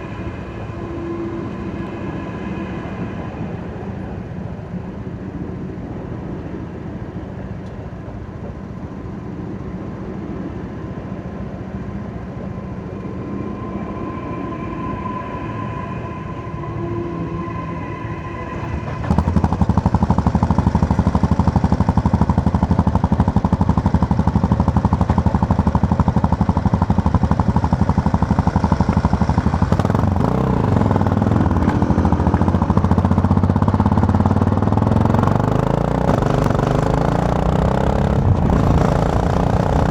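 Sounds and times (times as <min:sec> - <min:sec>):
motorcycle engine running: 0:18.8 - 0:39.9.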